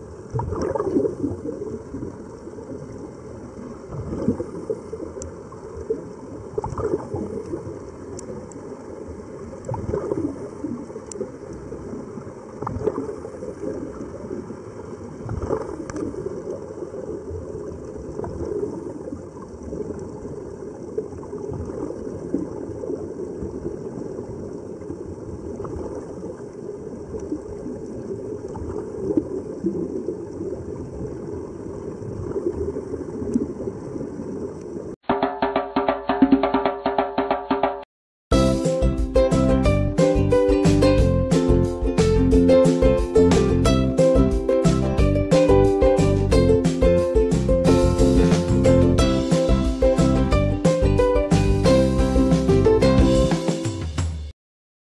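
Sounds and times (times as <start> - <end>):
underwater bubbling and gurgling: 0.0 - 35.0.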